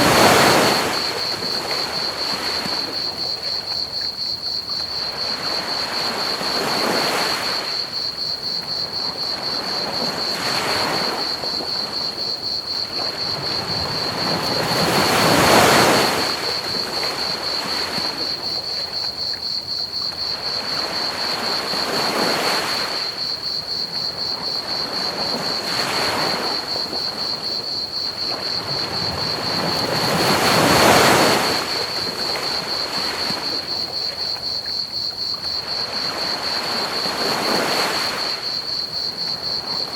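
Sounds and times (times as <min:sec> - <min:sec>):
ocean waves breaking on beach: 0:00.0 - 0:03.8, 0:04.9 - 0:18.7, 0:20.1 - 0:34.4, 0:35.6 - 0:39.9
crickets chirping: 0:00.0 - 0:39.9.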